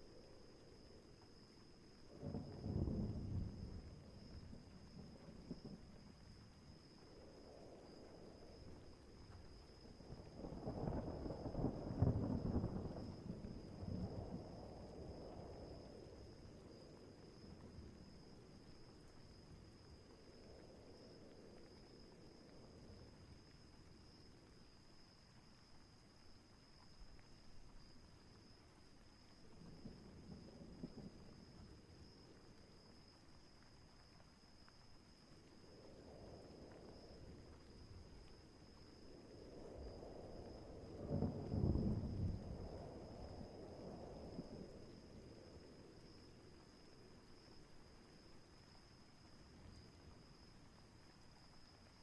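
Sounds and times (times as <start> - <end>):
faint thunder rumble: 0.0 - 52.0
insect trill: 0.0 - 52.0
distant thunder rumble: 10.4 - 15.8, 39.4 - 45.8.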